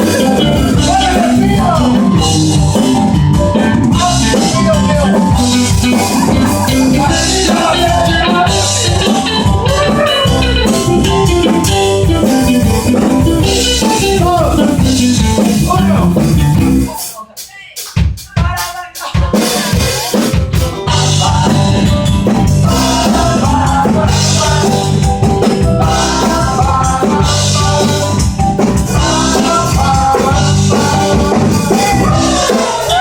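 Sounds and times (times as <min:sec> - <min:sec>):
drum kit beat: 0:00.0 - 0:33.0
live band music: 0:00.0 - 0:33.0
person singing: 0:00.0 - 0:33.0.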